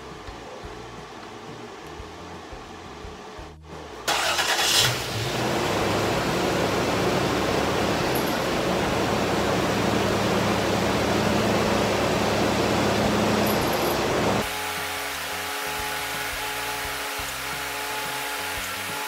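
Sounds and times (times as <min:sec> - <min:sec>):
car engine starting and idling: 0:03.6 - 0:14.4.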